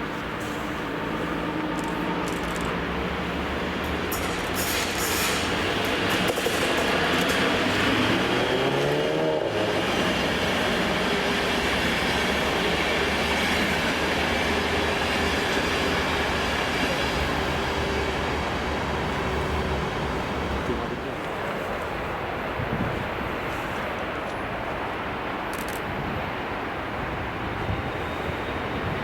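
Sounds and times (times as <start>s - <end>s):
electric train whining: 0.0s - 21.1s.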